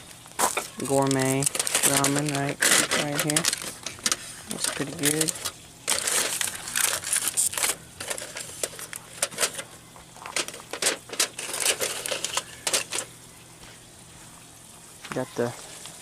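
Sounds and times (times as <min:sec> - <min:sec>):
fire crackling and popping: 0:00.0 - 0:12.2.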